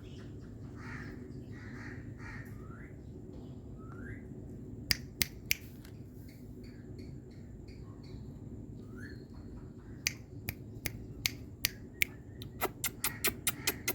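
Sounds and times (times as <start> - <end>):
parrot chirping: 12.0 - 13.9.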